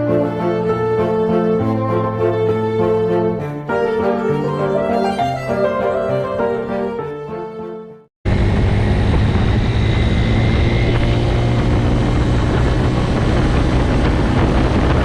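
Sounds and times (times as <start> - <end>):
music: 0.0 - 8.1
loud wind rush: 8.2 - 15.0
motorcycle engine hum: 8.3 - 15.0.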